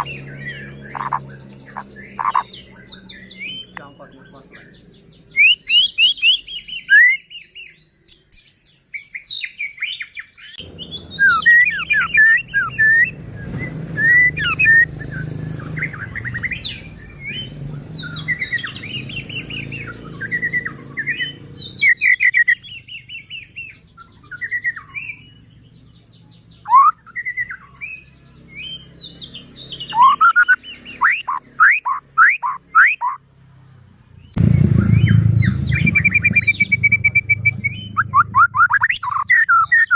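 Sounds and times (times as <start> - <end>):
bird singing whistles and trills: 0.0 - 33.2, 34.2 - 39.9
low background rumble: 34.2 - 39.2.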